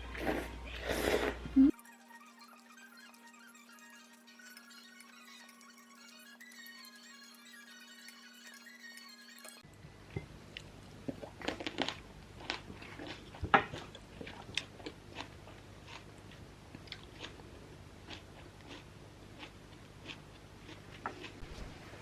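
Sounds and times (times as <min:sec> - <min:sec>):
crunchy biting and chewing: 0:11.2 - 0:21.8.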